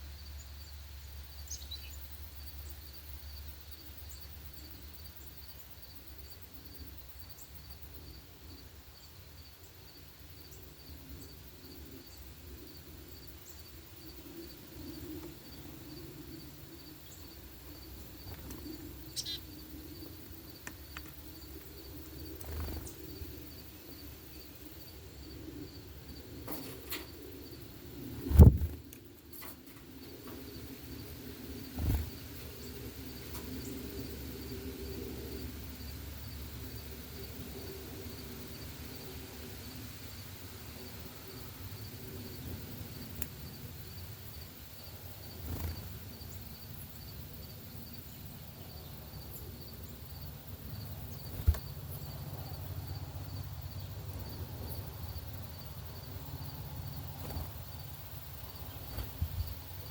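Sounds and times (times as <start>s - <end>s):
pulsing high insect trill: 0.3s - 39.1s
bird chirps: 1.5s - 2.0s, 19.0s - 19.6s.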